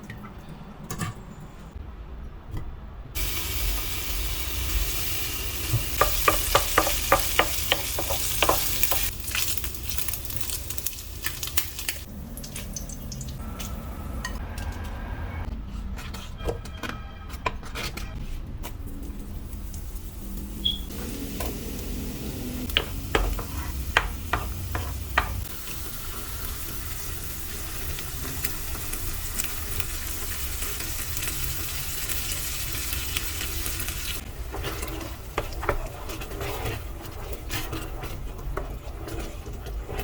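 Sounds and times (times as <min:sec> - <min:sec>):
food sizzling in a pan: 0:03.2 - 0:13.4, 0:19.4 - 0:35.9
utensil clicking against pan: 0:06.0 - 0:09.1.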